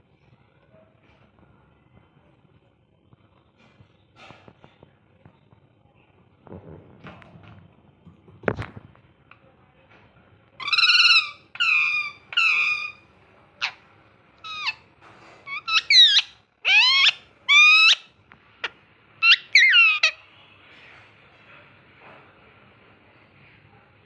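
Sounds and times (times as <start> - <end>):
parrot calling: 10.6 - 13.0, 13.6 - 13.8, 14.4 - 14.8, 15.4 - 20.2.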